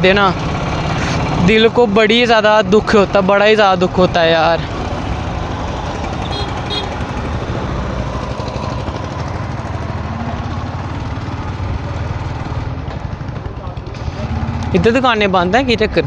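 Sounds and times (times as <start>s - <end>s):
motorcycle engine running: 5.0s - 14.1s.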